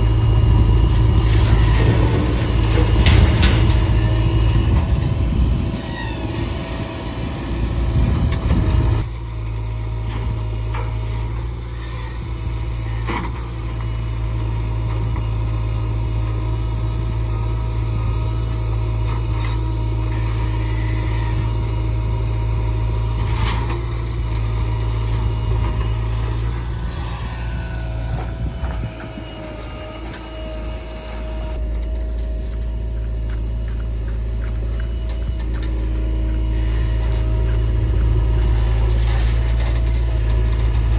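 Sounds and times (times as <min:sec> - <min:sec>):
diesel engine running at low revs: 0:00.0 - 0:40.9.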